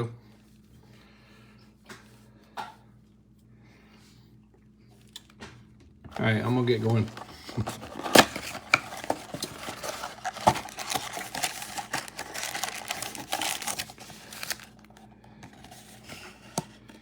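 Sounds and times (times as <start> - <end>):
cardboard and plastic rustling: 6.1 - 17.0.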